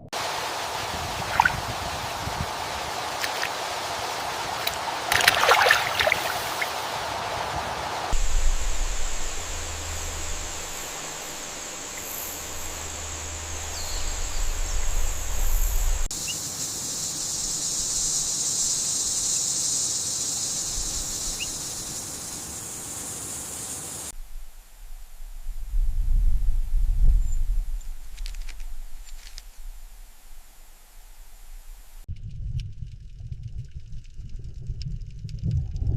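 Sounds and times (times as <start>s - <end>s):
low rumble: 8.1s - 16.1s, 24.2s - 30.3s, 31.2s - 35.9s
high-pitched insect drone: 8.1s - 24.1s.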